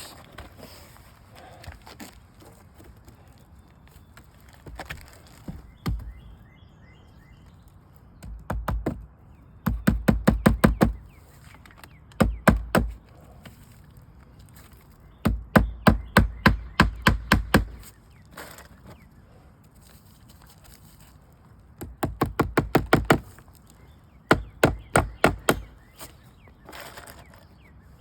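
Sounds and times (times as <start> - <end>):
hammer driving nails: 9.7 - 11.0, 15.3 - 17.8, 21.9 - 23.3, 24.3 - 25.8.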